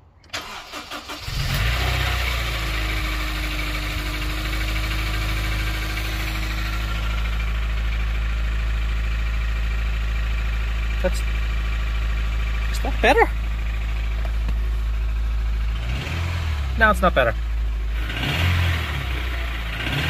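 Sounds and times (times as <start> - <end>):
engine idling: 0.0 - 20.0
engine starter cranking: 0.2 - 2.4
engine knocking and tapping: 2.4 - 20.0.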